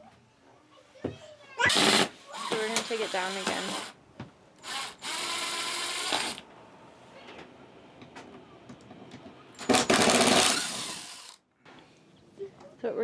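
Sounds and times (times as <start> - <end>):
power drill running: 1.7 - 4.0, 4.6 - 6.4, 9.7 - 11.4.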